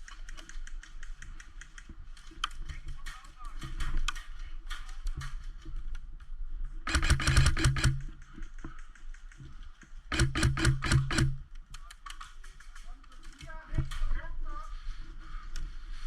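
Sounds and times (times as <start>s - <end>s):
faint clicks: 0.0s - 14.2s
airsoft gun full-auto bursts: 6.9s - 8.2s, 10.1s - 11.5s.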